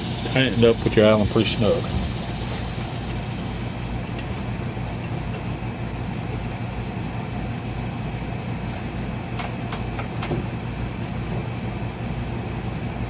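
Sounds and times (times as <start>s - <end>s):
faint high whine: 0.0s - 4.1s
low mechanical hum: 0.0s - 13.0s.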